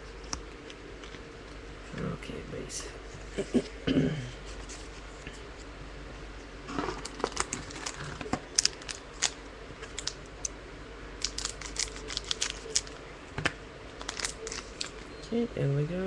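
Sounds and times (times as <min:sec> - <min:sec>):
trading cards rustling: 0:06.8 - 0:10.2, 0:11.2 - 0:13.0, 0:14.0 - 0:15.1.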